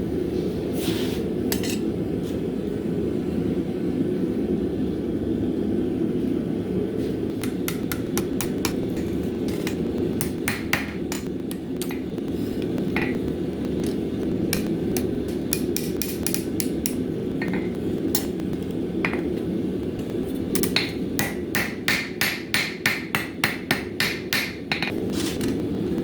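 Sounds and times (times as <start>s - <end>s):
steady low rumble: 1.9s - 22.5s
hammer striking metal on anvil: 7.4s - 12.1s, 13.8s - 18.3s, 20.5s - 24.9s.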